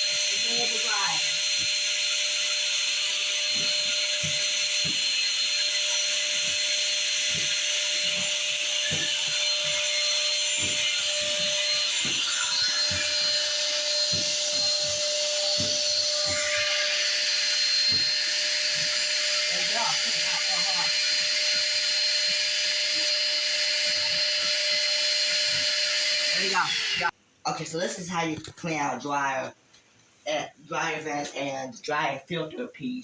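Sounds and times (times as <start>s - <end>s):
shop vac running: 0.0s - 27.1s
low thumps: 1.1s - 25.7s.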